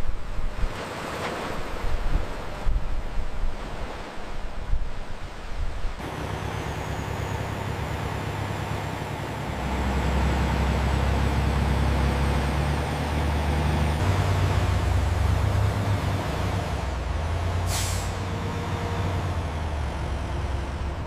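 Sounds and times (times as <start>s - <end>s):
heavy vehicle engine humming: 6.0s - 21.0s.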